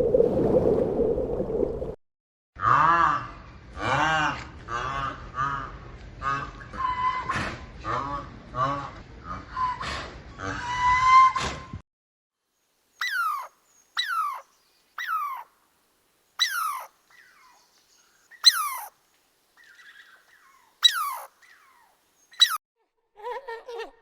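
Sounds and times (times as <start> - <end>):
animal calling: 13.0 - 15.5, 16.4 - 19.0, 19.6 - 22.6.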